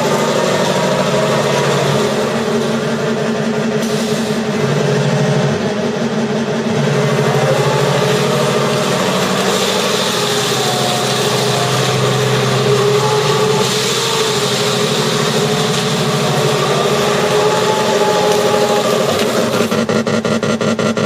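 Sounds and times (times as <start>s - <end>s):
tank engine sound from small speaker: 0.0s - 21.0s.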